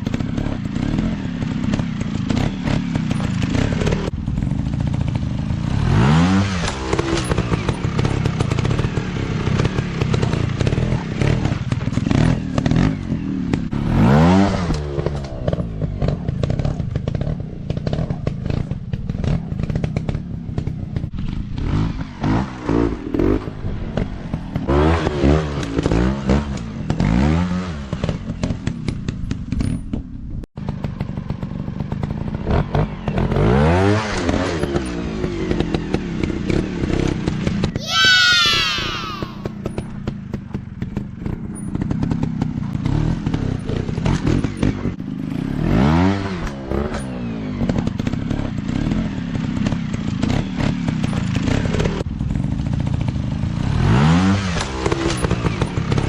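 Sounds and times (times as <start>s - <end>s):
dirt bike engine revving: 0.0s - 18.6s, 21.2s - 28.2s, 32.5s - 39.5s.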